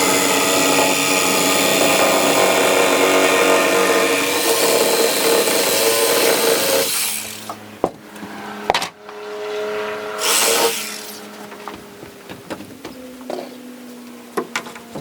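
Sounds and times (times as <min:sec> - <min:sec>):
power saw cutting wood: 0:00.0 - 0:11.8.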